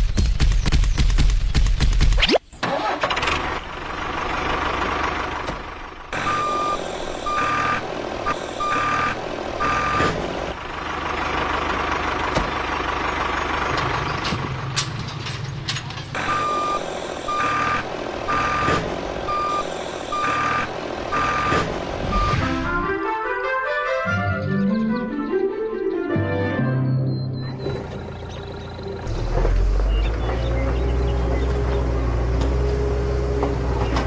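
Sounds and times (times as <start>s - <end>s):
vehicle engine running: 2.9s - 23.0s, 27.4s - 34.0s
reversing alarm beeping: 6.2s - 10.1s, 16.2s - 22.7s.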